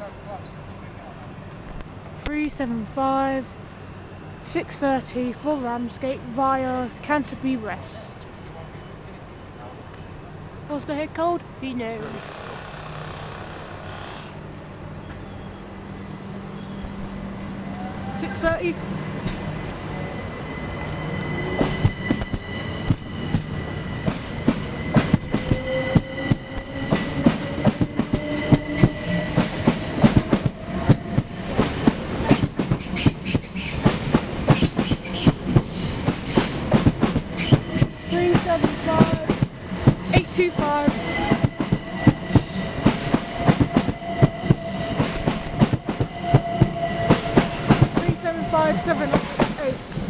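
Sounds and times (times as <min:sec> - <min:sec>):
train wheels clattering over rail joints: 0:09.6 - 0:50.0
traction motor whine: 0:11.4 - 0:50.0.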